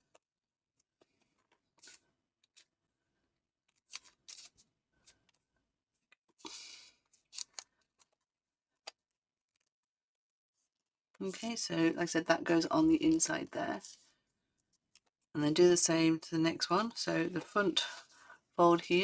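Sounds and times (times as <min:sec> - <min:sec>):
paper rustling and crinkling: 0:03.7 - 0:05.5, 0:07.0 - 0:08.3.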